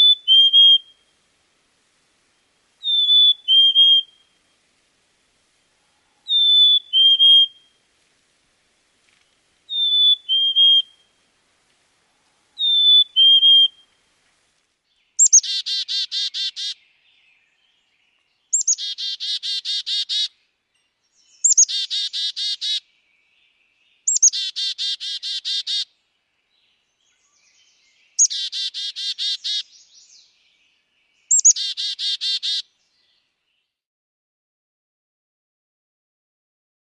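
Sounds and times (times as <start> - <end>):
chickadee whistled fee-bee song: 0.0 - 1.0, 2.8 - 4.4, 6.3 - 7.8, 9.7 - 11.1, 12.6 - 13.9, 18.5 - 19.1, 23.9 - 24.8, 31.2 - 32.4
chickadee buzzy calls: 0.0 - 1.1, 2.8 - 4.4, 6.2 - 7.8, 9.1 - 11.1, 12.6 - 13.9, 15.2 - 16.8, 18.5 - 20.3, 21.4 - 22.8, 24.1 - 25.9, 28.2 - 29.8, 31.3 - 32.7.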